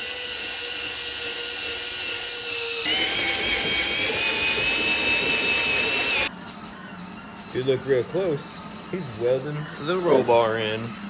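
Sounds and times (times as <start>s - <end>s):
power tool whining: 0.0s - 6.3s.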